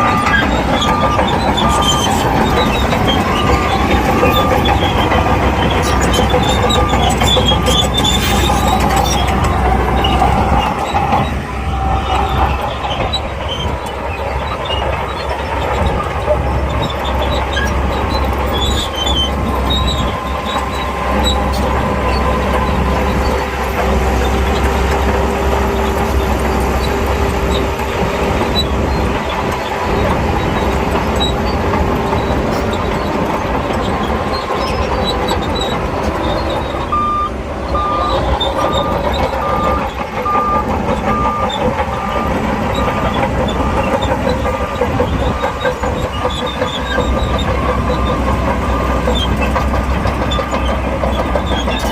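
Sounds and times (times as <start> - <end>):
reversing alarm beeping: 0.0 - 14.1, 35.6 - 51.3
heavy machinery diesel engines: 0.0 - 51.9.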